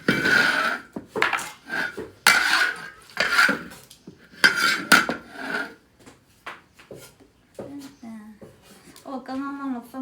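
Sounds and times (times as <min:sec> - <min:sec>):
metal utensil scraping a pot: 0:00.0 - 0:05.8.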